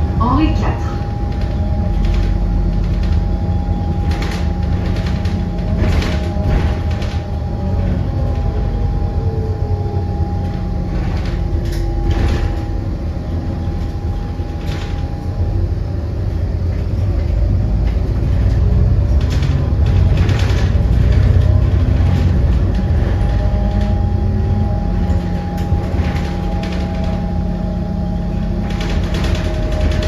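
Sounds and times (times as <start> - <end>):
vehicle rumble: 0.0 - 30.0.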